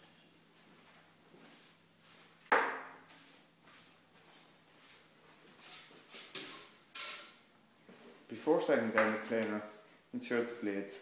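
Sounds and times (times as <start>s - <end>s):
brush sweeping workbench: 1.4s - 7.4s, 8.3s - 11.0s.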